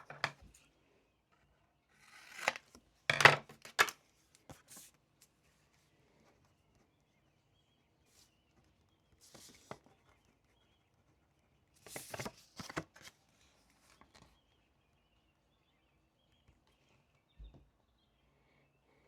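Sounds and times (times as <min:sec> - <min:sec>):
paper rustling: 0:02.0 - 0:06.5, 0:09.2 - 0:10.0, 0:11.8 - 0:14.4.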